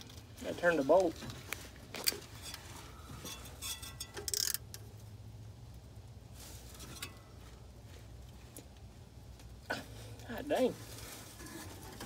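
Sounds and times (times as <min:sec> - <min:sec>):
ratchet clicking and scraping: 0:03.2 - 0:04.8.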